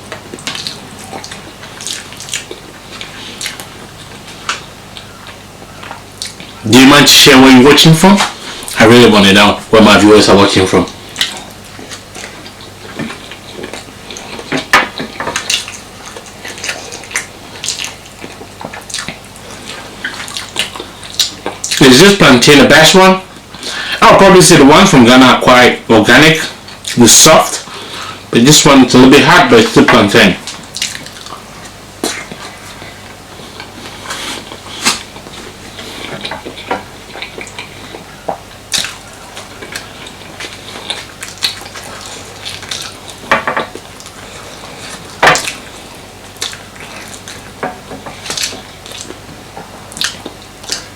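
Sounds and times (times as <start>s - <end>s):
chewing mouth clicks and smacks: 0.1s - 6.6s, 10.9s - 21.8s, 30.5s - 32.9s, 36.0s - 45.7s, 46.3s - 50.9s.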